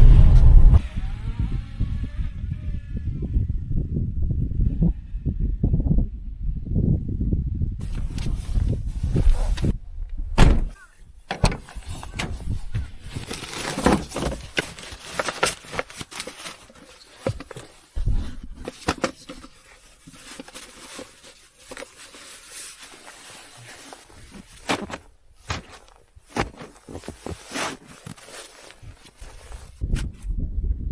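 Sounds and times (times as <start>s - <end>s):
low rumble: 0.0s - 10.7s
knocks thuds and clicks: 10.4s - 12.9s.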